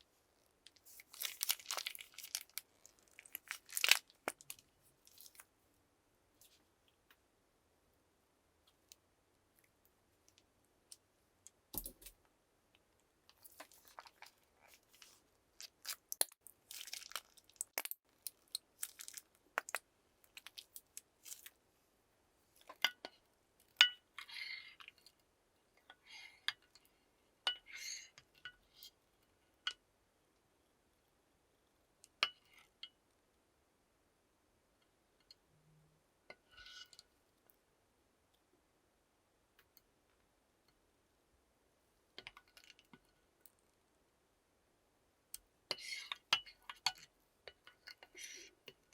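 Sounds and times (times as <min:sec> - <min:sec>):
slime clicks and crackles: 0:01.0 - 0:04.6.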